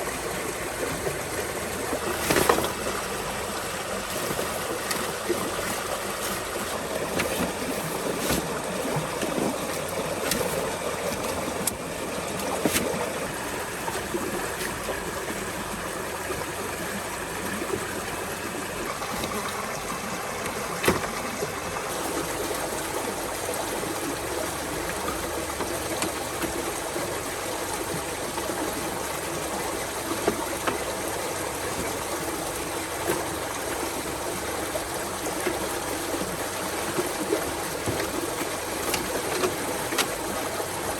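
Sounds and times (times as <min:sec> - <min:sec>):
running water: 0:00.0 - 0:40.9.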